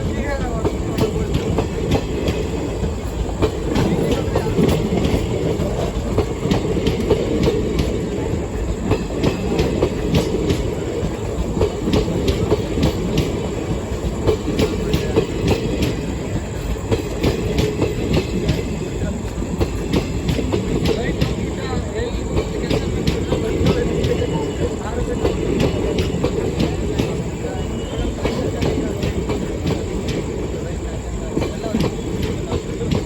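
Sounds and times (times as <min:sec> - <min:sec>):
train rumble: 0:00.0 - 0:33.0
wheels clicking over rail joints: 0:00.0 - 0:33.0.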